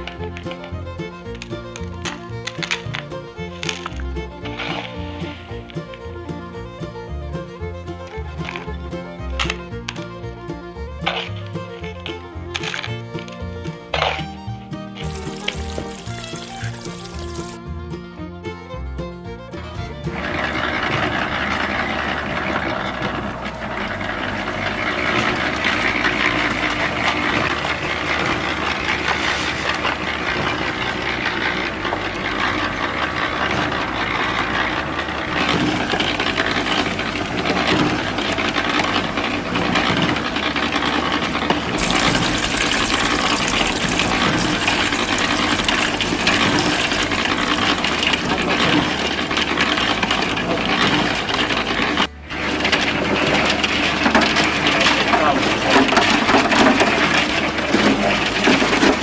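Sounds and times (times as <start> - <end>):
water pouring in thin stream: 15.0 - 17.6, 41.8 - 48.9.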